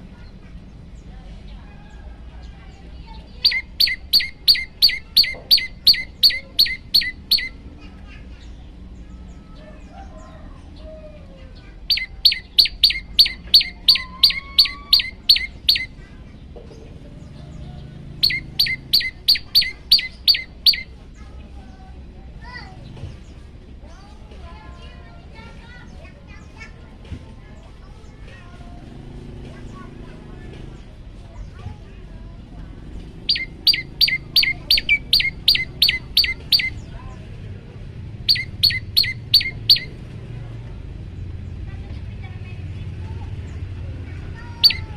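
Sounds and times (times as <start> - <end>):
bird calling sharp chips: 3.2 - 7.6, 11.9 - 16.0, 18.2 - 21.0, 33.2 - 36.9, 38.3 - 40.0, 44.4 - 44.9.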